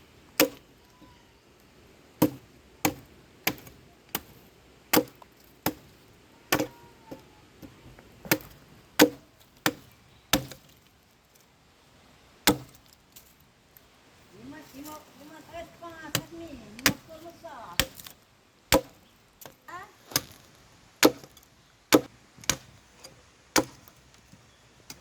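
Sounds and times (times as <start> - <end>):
axe chopping wood: 0.4 - 0.7, 2.2 - 10.9, 12.4 - 13.3, 16.0 - 20.4, 21.0 - 22.8, 23.6 - 23.9.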